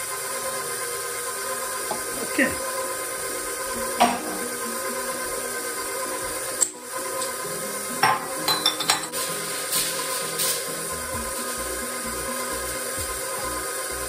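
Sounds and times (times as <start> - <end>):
stand mixer running: 0.0 - 14.0.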